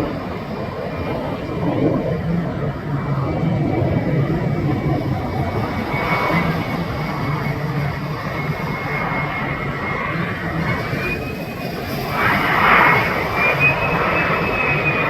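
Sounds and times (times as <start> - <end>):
jet engine rumble and whine: 0.0 - 15.0.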